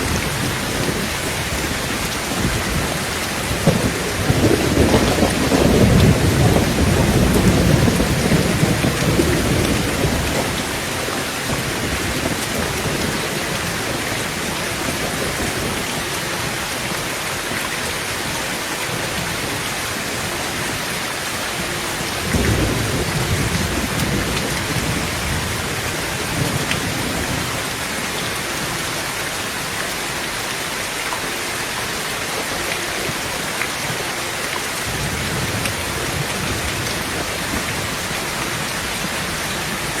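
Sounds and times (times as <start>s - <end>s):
heavy rain on tin roof: 0.0s - 40.0s
rolls of thunder: 2.4s - 10.8s.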